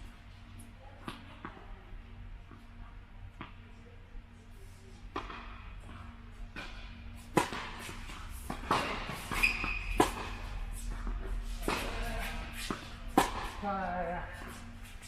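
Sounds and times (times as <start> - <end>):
tennis balls struck by rackets: 5.1 - 15.0.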